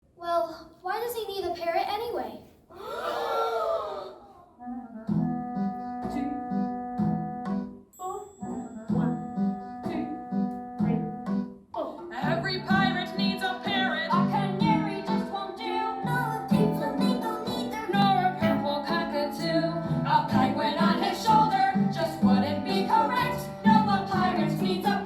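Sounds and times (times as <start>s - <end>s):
person singing: 3.6s - 6.6s, 8.0s - 11.2s, 11.8s - 25.0s.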